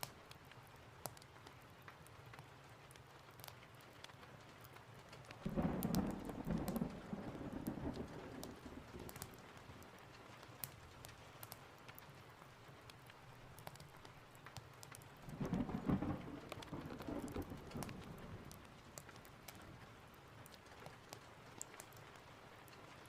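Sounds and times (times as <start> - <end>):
steady rain: 0.0 - 23.0
thunder rumbling: 5.4 - 9.5, 15.2 - 18.8.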